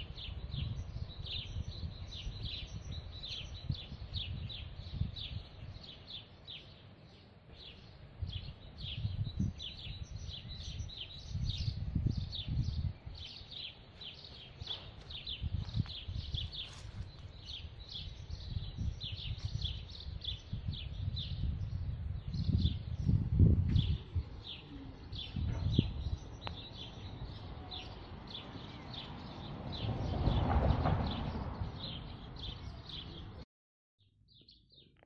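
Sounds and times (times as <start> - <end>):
small bird chirping: 0.0 - 29.5
low microphone rumble: 7.6 - 13.3, 14.4 - 28.4.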